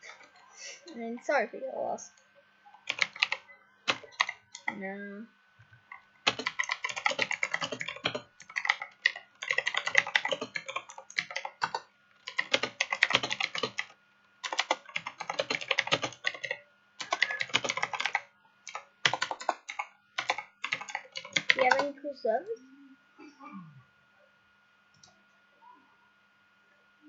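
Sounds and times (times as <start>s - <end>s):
rapid typing on keyboard: 2.9s - 4.8s, 5.9s - 21.9s.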